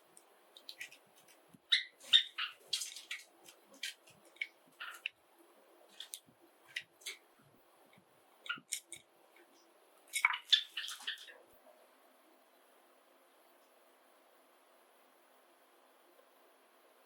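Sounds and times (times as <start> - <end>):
sparrows chirping: 1.7 - 3.0, 10.2 - 11.4.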